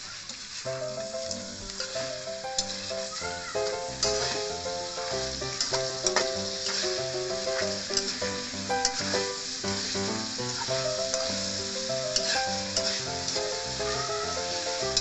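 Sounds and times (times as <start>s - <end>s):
food sizzling in a wok: 0.0s - 15.0s
background music: 0.7s - 15.0s.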